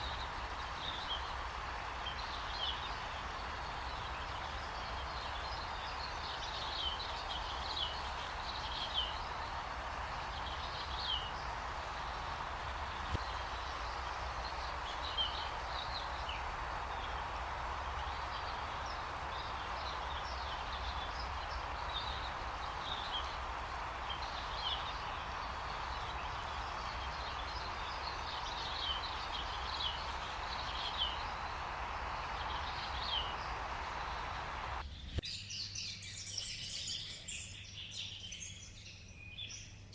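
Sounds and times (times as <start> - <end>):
steady hiss: 0.0 - 34.8
high bird chirps: 5.0 - 34.8.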